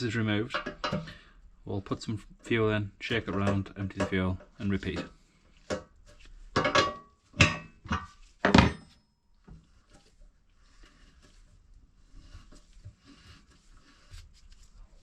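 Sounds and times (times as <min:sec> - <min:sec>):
handling rustles and ticks: 0:07.9 - 0:15.0.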